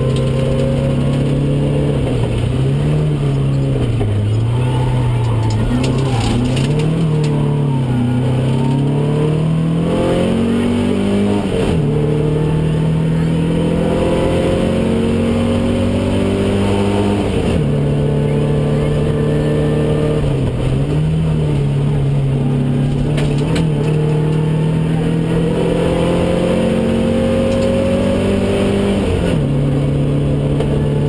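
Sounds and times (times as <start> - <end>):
rally car engine from inside cabin: 0.0 - 31.0.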